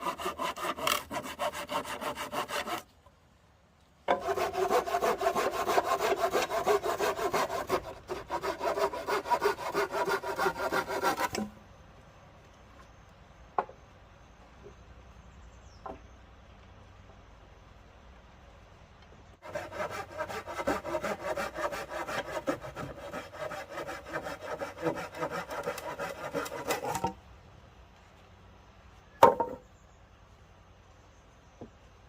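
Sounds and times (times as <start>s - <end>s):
hand saw cutting wood: 0.0s - 2.9s, 4.1s - 11.5s, 19.4s - 27.2s.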